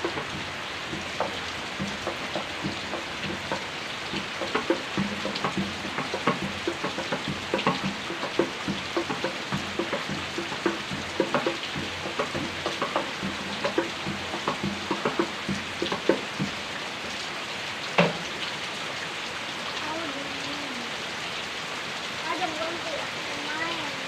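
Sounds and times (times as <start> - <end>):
loud water splat: 0.0 - 16.7
heavy rain falling: 0.0 - 24.0
raindrops splashing and plinking: 0.0 - 24.0.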